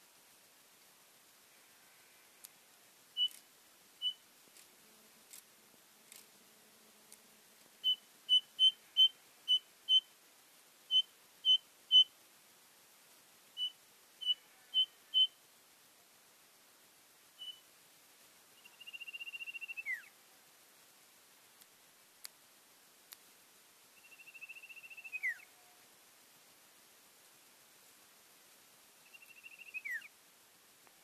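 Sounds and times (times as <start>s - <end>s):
faint clicks: 2.3s - 2.6s, 3.2s - 3.5s, 4.1s - 6.4s, 21.5s - 22.4s, 23.0s - 23.3s, 30.8s - 31.0s
bird whistling single notes: 18.7s - 20.1s, 24.0s - 25.5s, 29.0s - 30.1s.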